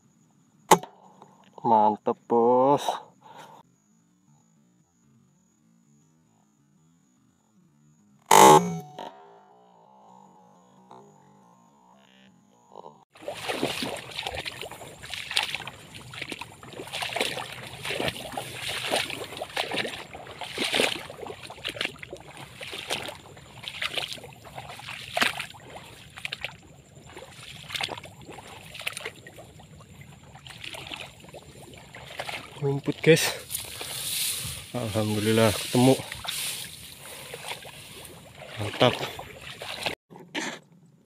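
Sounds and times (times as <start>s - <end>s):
footsteps through shallow water: 13.1s - 40.0s.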